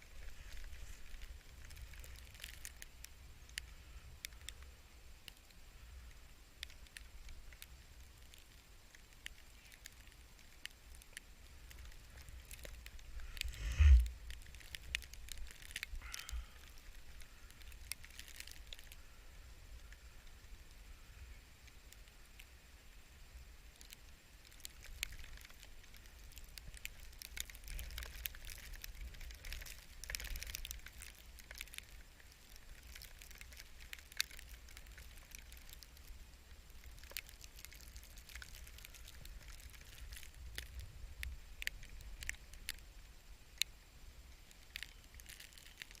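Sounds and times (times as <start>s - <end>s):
wind on microphone: 13.2s - 14.2s.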